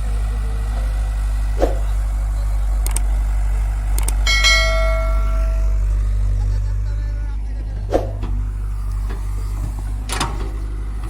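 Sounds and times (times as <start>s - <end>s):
diesel engine droning: 0.0s - 11.0s
light clicks: 2.6s - 3.2s, 3.9s - 4.2s
ringing tone: 4.2s - 6.6s.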